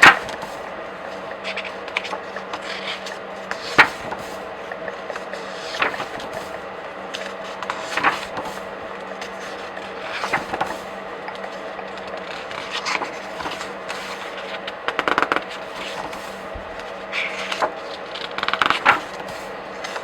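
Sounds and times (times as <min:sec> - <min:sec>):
pages being flipped: 0:01.3 - 0:20.0.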